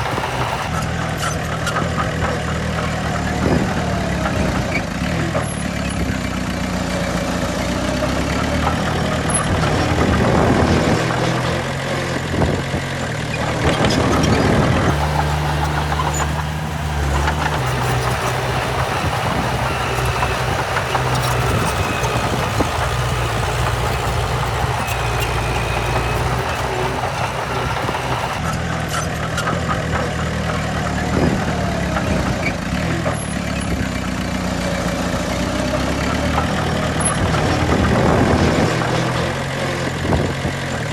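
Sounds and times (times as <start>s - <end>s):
heavy diesel machinery engines: 0.0s - 0.8s, 14.9s - 28.5s.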